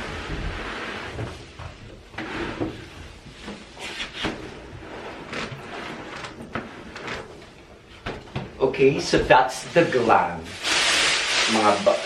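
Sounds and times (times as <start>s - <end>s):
objects knocking and rustling: 0.0s - 9.4s.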